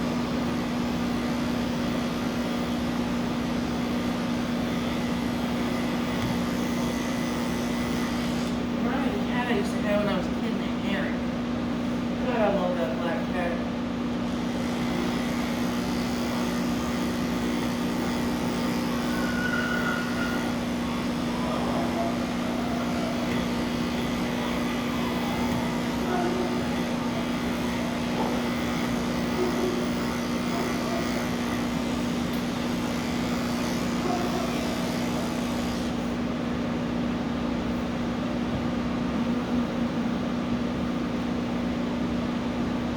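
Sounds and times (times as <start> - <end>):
electric clippers humming: 0.0 - 8.7, 14.1 - 36.2.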